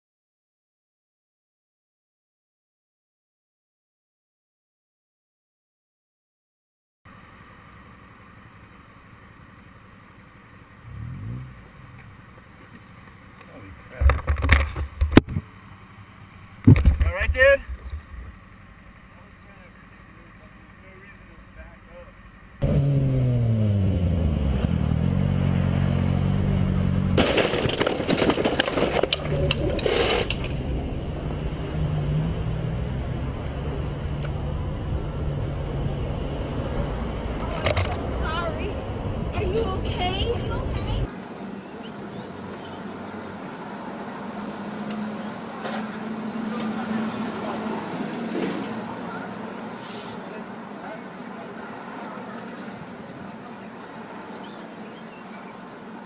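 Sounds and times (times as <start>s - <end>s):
road traffic noise: 7.1s - 56.0s
vehicle engine accelerating: 7.3s - 20.8s, 22.6s - 27.8s, 28.8s - 56.0s
dense crackling and clattering: 13.9s - 15.4s, 27.2s - 30.7s.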